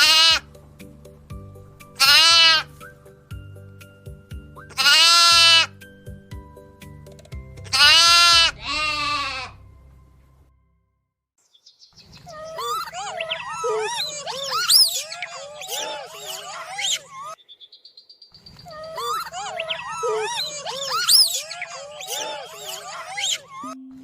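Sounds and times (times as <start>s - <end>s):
sheep or goat bleating: 0.0s - 0.4s, 2.0s - 2.7s, 4.7s - 5.7s, 7.7s - 9.6s
soft background music: 0.0s - 10.8s, 23.5s - 24.0s
animal high wavering calls: 12.2s - 23.8s.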